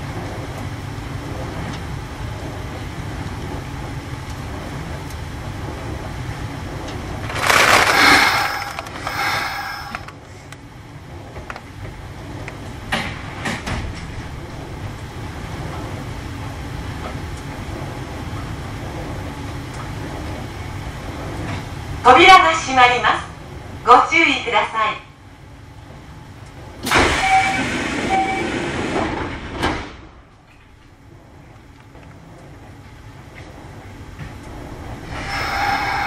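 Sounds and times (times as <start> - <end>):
electric train humming: 0.0 - 29.3, 30.1 - 36.0
bursts of rushing air: 7.3 - 10.1.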